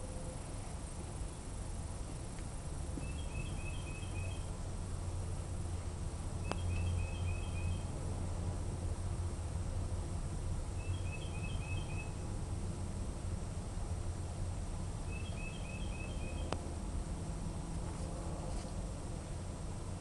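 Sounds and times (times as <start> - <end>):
low outdoor rumble: 0.0 - 20.0
songbird chirping: 3.0 - 4.6, 6.4 - 8.0, 10.8 - 12.3, 15.0 - 16.6.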